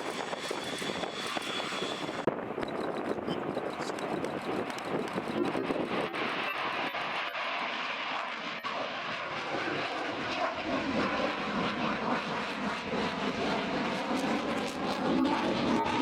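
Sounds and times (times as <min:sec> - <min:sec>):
fighter jet engines rushing: 0:00.0 - 0:16.0.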